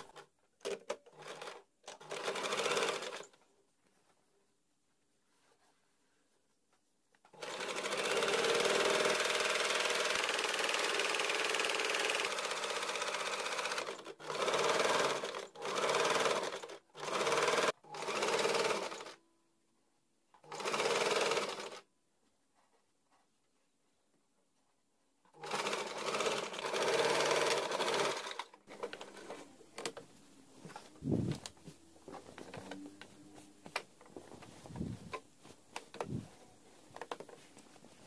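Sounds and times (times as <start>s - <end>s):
sewing machine stitching: 0.0s - 3.4s, 7.3s - 19.2s, 20.4s - 21.8s, 25.3s - 30.0s.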